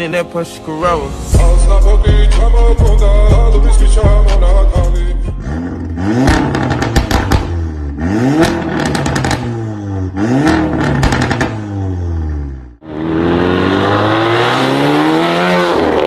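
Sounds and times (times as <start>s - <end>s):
bass-heavy music: 0.0s - 16.0s
car engine revving: 5.4s - 16.0s
exhaust crackles and pops: 6.2s - 7.6s, 8.4s - 9.6s, 10.4s - 11.7s.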